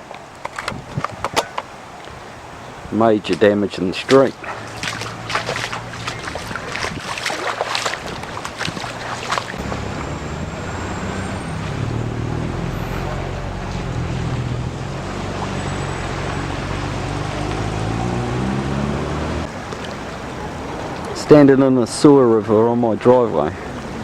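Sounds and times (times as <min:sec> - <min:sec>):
water splashing and sloshing: 0:00.0 - 0:24.0
low steady rumble: 0:09.4 - 0:20.8.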